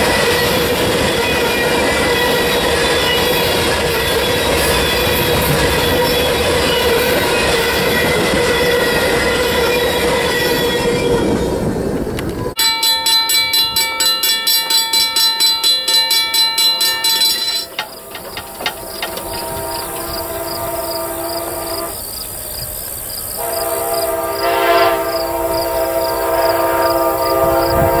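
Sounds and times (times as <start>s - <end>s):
freight train rolling past: 0.0s - 28.0s
railroad crossing bell ringing: 12.6s - 21.1s
faint train horn: 17.8s - 22.1s, 23.4s - 28.0s.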